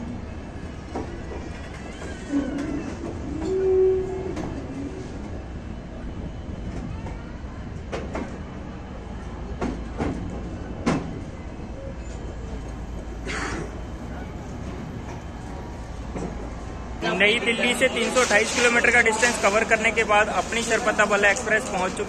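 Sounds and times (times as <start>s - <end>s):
train rumbling on track: 0.0s - 22.0s
train squeal: 1.2s - 5.1s.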